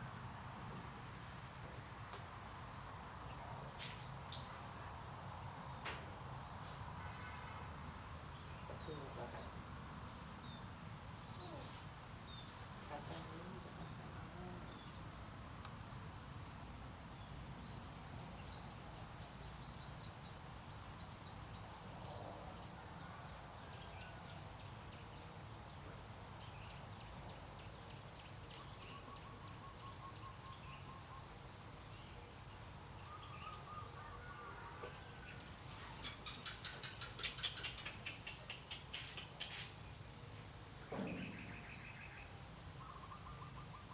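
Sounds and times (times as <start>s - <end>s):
small birds chirping: 10.4s - 22.5s, 34.9s - 43.9s.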